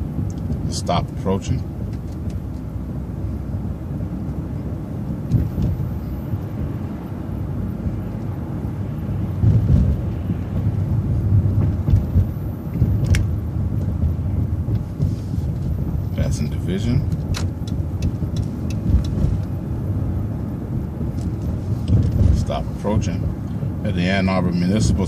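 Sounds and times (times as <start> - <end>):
bus engine and road rumble: 0.0 - 25.0
sharp clicks or rattles: 17.1 - 19.5.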